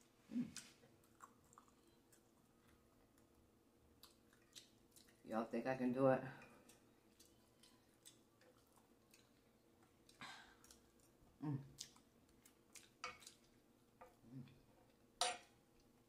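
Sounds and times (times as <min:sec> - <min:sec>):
chewing with closed lips: 0:00.6 - 0:03.3, 0:04.0 - 0:05.2, 0:06.6 - 0:13.6.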